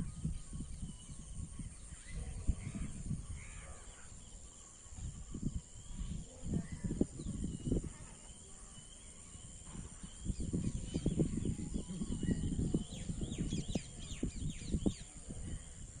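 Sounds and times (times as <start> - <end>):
birds chirping: 0.0 - 16.0
low rumbling bumps on microphone: 9.5 - 15.8.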